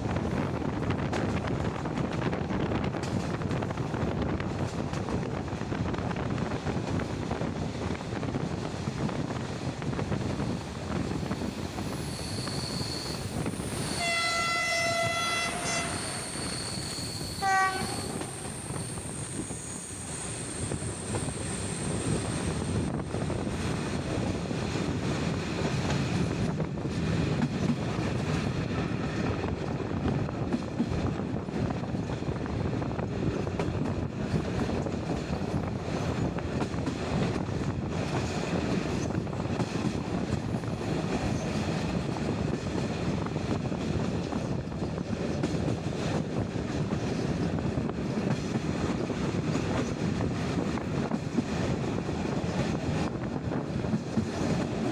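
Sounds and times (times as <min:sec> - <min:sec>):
train rumble: 0:00.0 - 0:54.9
high wheel squeal: 0:11.8 - 0:14.1, 0:15.4 - 0:22.5
locomotive horn blast: 0:14.0 - 0:16.2, 0:17.4 - 0:18.4.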